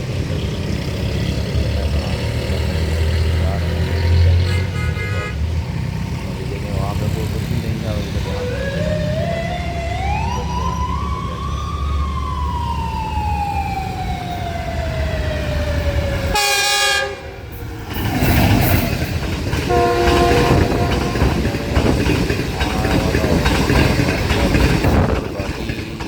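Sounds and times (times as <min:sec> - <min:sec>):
train horn: 0:04.4 - 0:05.4, 0:16.2 - 0:17.5, 0:19.7 - 0:22.0
train rumble and whine: 0:05.4 - 0:26.0
multi-note horn chord: 0:16.3 - 0:17.4, 0:19.7 - 0:21.5
train clatter: 0:17.4 - 0:26.0.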